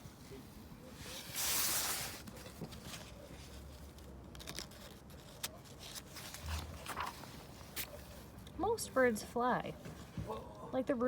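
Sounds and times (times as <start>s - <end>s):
paper page turning: 1.3s - 8.2s.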